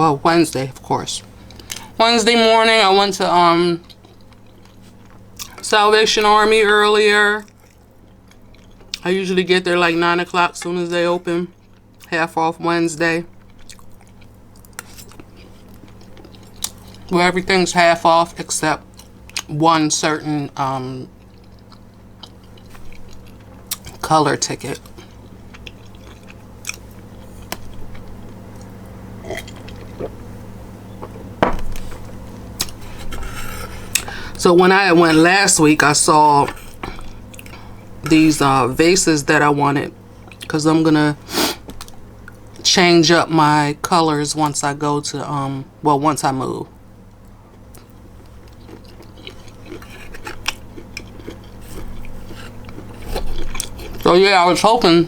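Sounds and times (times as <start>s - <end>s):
steady low hum: 0.0s - 55.0s
person chewing food: 1.4s - 1.9s, 3.8s - 5.6s, 7.4s - 9.0s, 11.5s - 12.1s, 13.3s - 17.1s, 18.8s - 19.5s, 21.1s - 24.0s, 24.7s - 34.4s, 35.9s - 38.1s, 40.1s - 40.5s, 41.3s - 42.6s, 47.1s - 54.1s.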